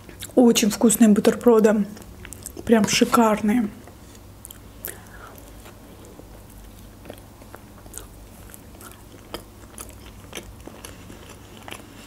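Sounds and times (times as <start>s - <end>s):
chewing: 2.0s - 2.7s, 4.0s - 12.0s.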